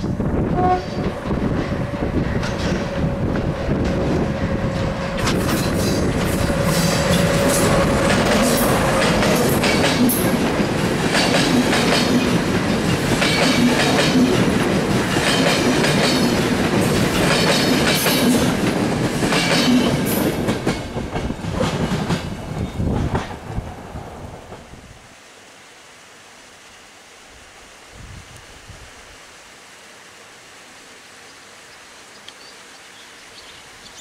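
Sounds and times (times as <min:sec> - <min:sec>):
wheels clattering over rail joints: 0:00.9 - 0:23.5.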